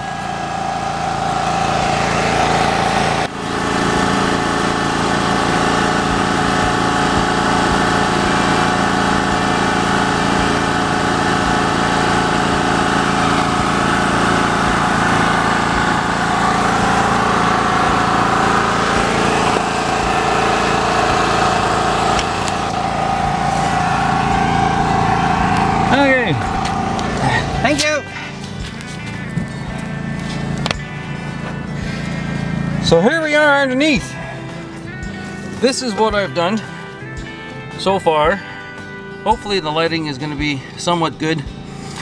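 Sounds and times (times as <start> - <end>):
small motor humming: 0.0 - 32.8, 41.5 - 42.0.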